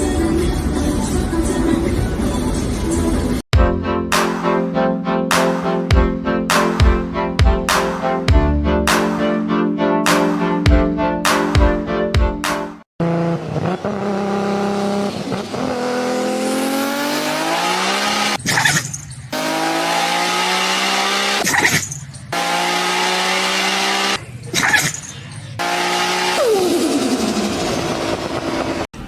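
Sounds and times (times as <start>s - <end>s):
car engine accelerating: 13.0s - 18.4s, 19.4s - 21.6s, 22.4s - 24.2s, 25.6s - 28.8s.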